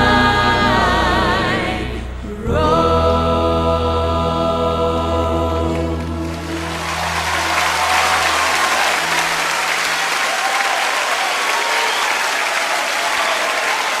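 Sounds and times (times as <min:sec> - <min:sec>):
low held chord: 0:00.0 - 0:10.0
audience applauding: 0:05.7 - 0:14.0.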